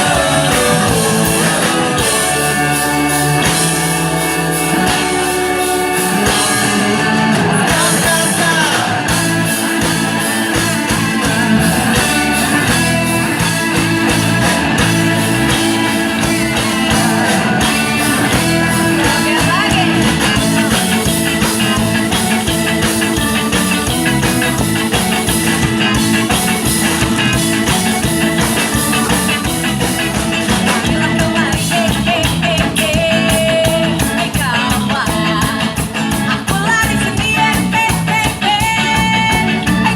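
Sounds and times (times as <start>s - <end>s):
person singing: 0.0s - 5.1s, 6.0s - 9.5s, 16.2s - 21.2s, 30.5s - 39.9s
ska band playing: 0.0s - 39.9s.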